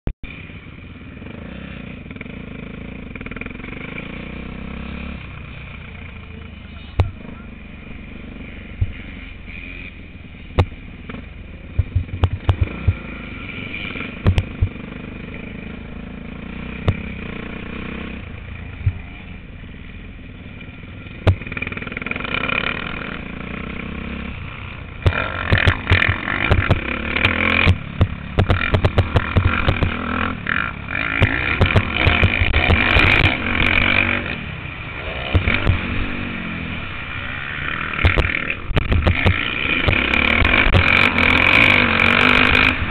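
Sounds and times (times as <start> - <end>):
motocross bike engine: 0.2 - 42.9
repeated thumps: 8.8 - 9.0, 10.5 - 13.1, 14.2 - 14.8, 16.8 - 17.1, 21.2 - 21.6, 25.0 - 30.1, 31.1 - 33.4, 35.3 - 35.8, 38.0 - 41.0
sharp knocks: 10.6 - 10.8, 11.8 - 13.0, 14.2 - 14.8, 21.2 - 21.5, 25.0 - 30.0, 31.2 - 33.4, 35.3 - 35.8, 38.0 - 40.9.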